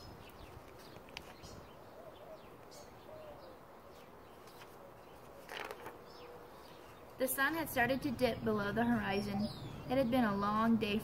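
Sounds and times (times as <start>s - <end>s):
brief rustle: 4.4s - 6.0s.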